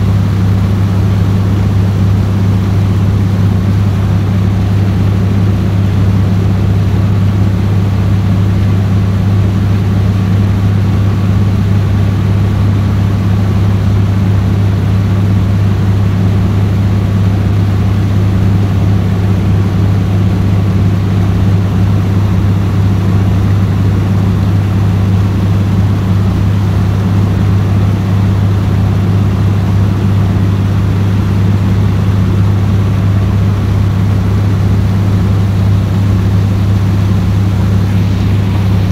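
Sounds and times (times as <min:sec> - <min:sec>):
boat engine droning: 0:00.0 - 0:38.9.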